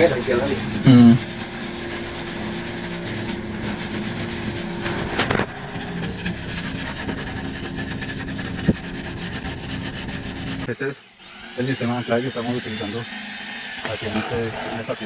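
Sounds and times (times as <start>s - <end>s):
sponge scrubbing bamboo pole: 0.0s - 10.7s.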